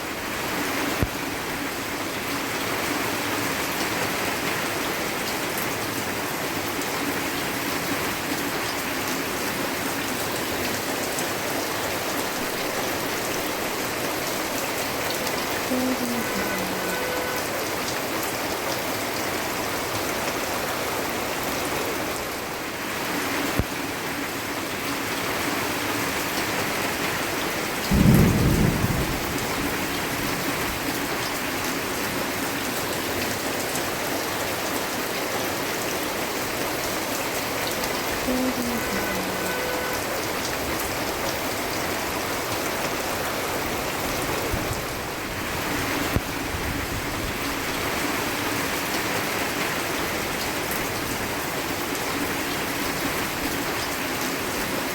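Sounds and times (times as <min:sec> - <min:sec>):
steady rain falling: 0:00.0 - 0:54.9
thunder rumble: 0:27.9 - 0:30.3.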